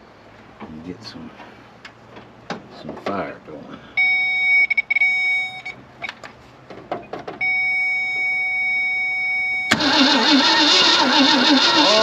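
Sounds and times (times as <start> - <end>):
starter cranking engine: 9.7 - 12.0.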